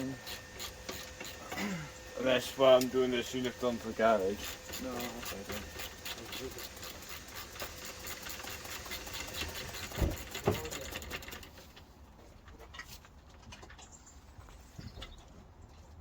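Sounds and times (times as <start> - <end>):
ratchet spanner clicking: 0.0 - 1.5, 2.8 - 11.6.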